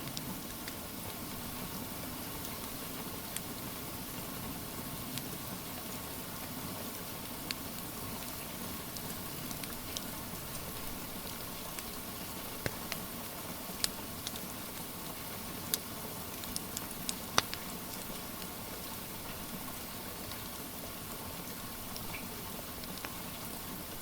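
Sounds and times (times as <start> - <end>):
wood fire crackling: 0.0 - 4.4, 5.1 - 24.0
rain hissing: 5.5 - 24.0.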